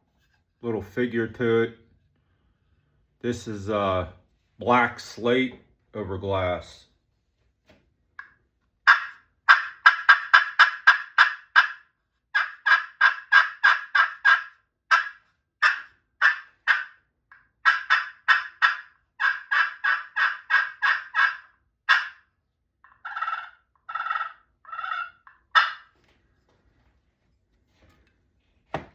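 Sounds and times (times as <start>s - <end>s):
turkey call yelps: 8.9s - 11.8s, 12.4s - 17.0s, 17.6s - 22.2s, 22.9s - 25.9s.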